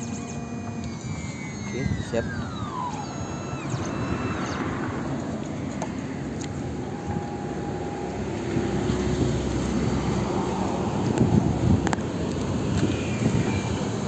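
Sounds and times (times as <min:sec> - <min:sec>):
key-cutting machine milling: 0:00.0 - 0:09.4.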